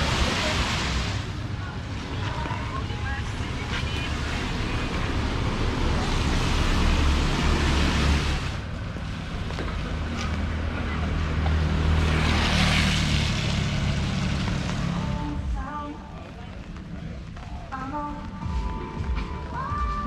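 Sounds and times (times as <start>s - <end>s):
tyres hissing on wet road: 0.0s - 15.3s
engine hum: 0.0s - 20.0s.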